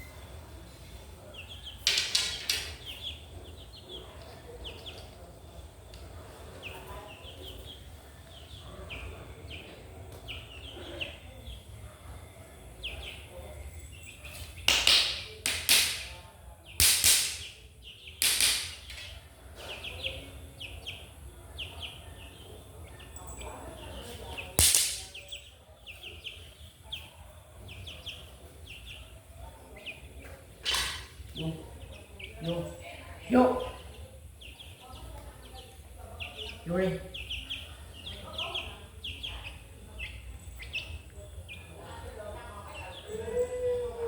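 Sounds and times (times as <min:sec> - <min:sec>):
chick peeping: 0:00.0 - 0:15.1, 0:16.2 - 0:44.0.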